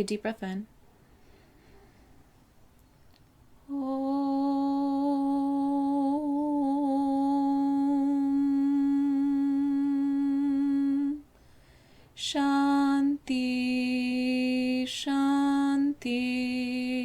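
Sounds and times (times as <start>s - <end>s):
person chanting om: 3.6s - 11.2s.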